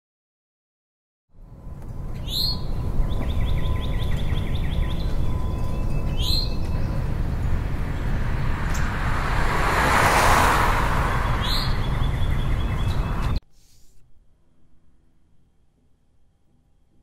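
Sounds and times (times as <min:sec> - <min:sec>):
birds chirping: 0:02.1 - 0:13.4.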